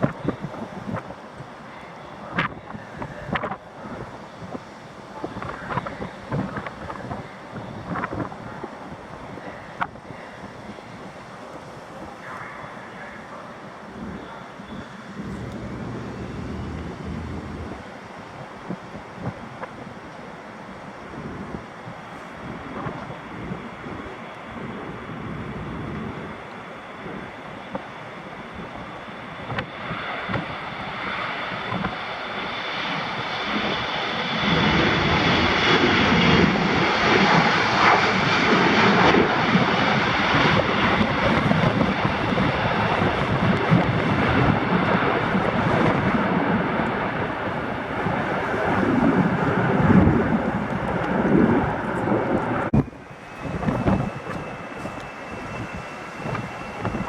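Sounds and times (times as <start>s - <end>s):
high engine whine: 0.0s - 18.9s, 33.5s - 57.0s
airliner engines roaring: 0.0s - 57.0s.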